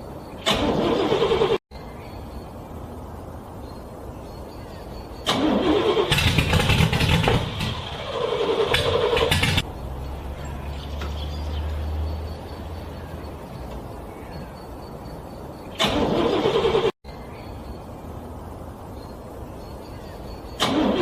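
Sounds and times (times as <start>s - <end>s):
car starter cranking engine: 0.4s - 1.6s, 5.2s - 9.6s, 15.8s - 17.0s, 20.6s - 21.0s.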